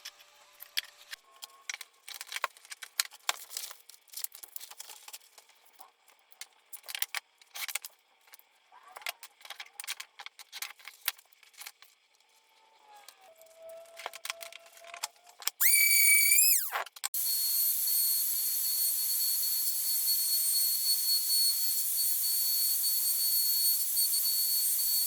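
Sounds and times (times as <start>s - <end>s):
small power tool whining: 15.5s - 25.0s
high-pitched hissing whine: 15.6s - 25.0s.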